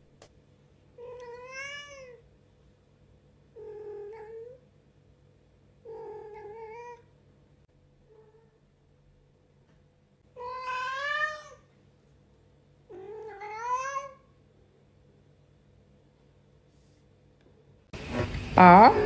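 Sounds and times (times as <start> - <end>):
cat meowing: 10.4 - 11.6.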